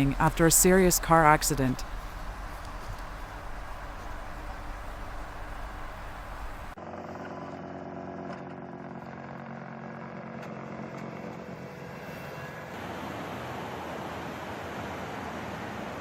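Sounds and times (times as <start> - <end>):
hissing rush: 0.0 - 6.8
rumbling noise: 0.0 - 6.8
vehicle engine running: 0.0 - 6.8.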